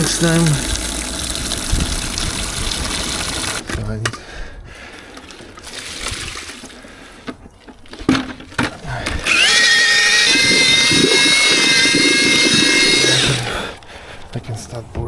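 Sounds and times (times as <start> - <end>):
electric paddle mixer churning concrete: 0.0 - 3.7, 8.8 - 14.2.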